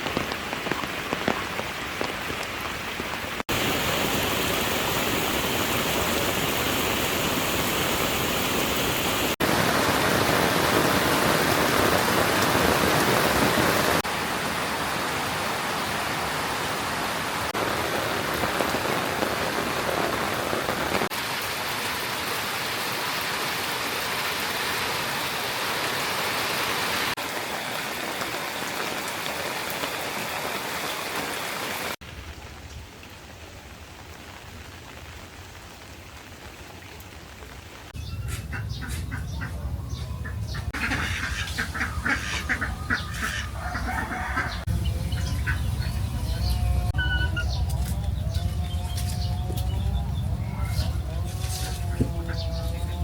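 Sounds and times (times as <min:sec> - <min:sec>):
heavy rain falling: 0:00.0 - 0:53.0
low rumble: 0:44.6 - 0:53.0.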